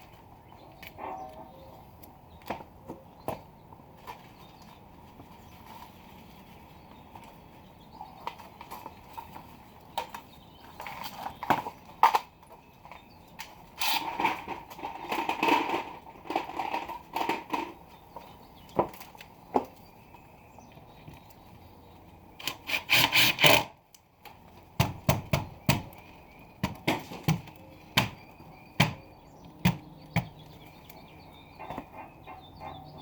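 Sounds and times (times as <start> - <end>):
sharp wooden knocks: 24.8 - 26.0, 26.6 - 28.2, 28.8 - 30.4.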